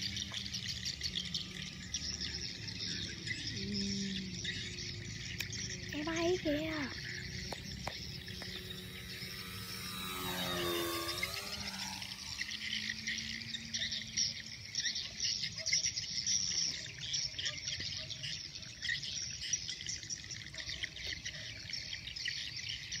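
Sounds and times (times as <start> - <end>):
insects chirping: 0.0 - 22.9
birds chirping: 0.0 - 23.0
faint low hum: 5.4 - 14.5.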